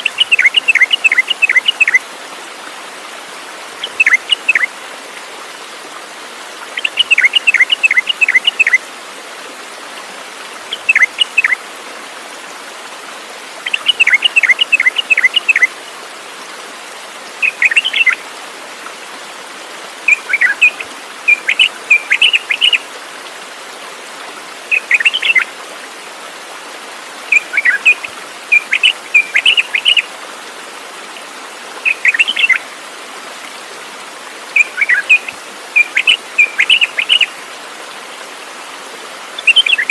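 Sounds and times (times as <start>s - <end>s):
songbird chirping: 0.0s - 2.0s, 3.8s - 4.7s, 6.8s - 8.8s, 10.7s - 11.6s, 13.6s - 15.7s, 17.4s - 18.2s, 20.1s - 22.8s, 24.7s - 25.5s, 27.3s - 30.1s, 31.8s - 32.7s, 34.6s - 37.3s, 39.4s - 39.9s.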